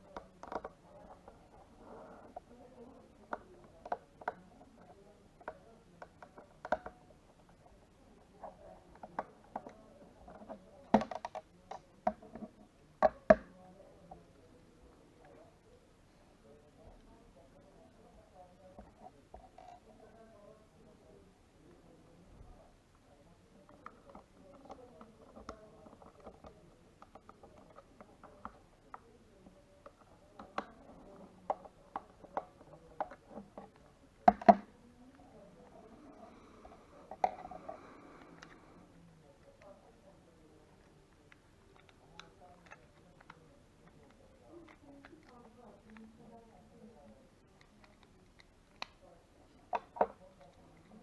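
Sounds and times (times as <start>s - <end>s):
computer mouse clicks and taps: 5.4s - 7.0s, 9.0s - 13.5s, 29.8s - 34.7s
computer mouse clicking: 29.8s - 34.7s.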